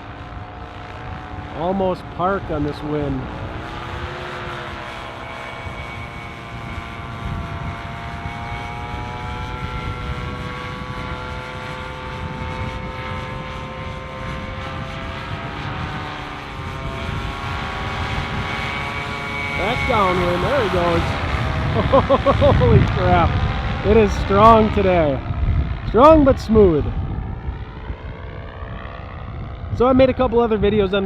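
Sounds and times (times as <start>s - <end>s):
paramotor engine droning overhead: 0.0s - 31.0s
wind rumble on microphone: 0.0s - 31.0s.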